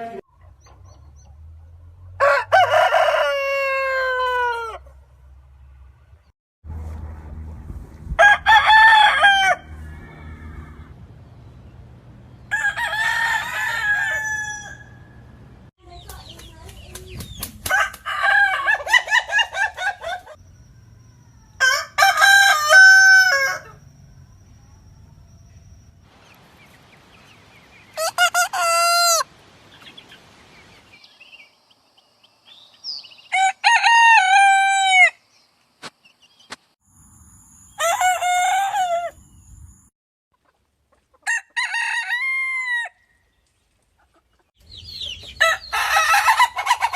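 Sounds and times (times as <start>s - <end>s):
roosters crowing: 2.2s - 5.0s, 8.1s - 11.1s, 12.4s - 15.3s, 17.6s - 24.0s, 28.0s - 29.3s, 33.2s - 35.2s, 37.6s - 39.4s, 41.2s - 43.2s, 45.4s - 46.9s.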